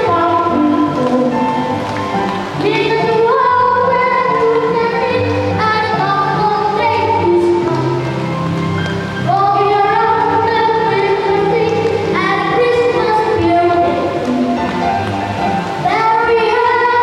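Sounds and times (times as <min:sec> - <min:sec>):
children's choir singing a carol: 0:02.6 - 0:08.0.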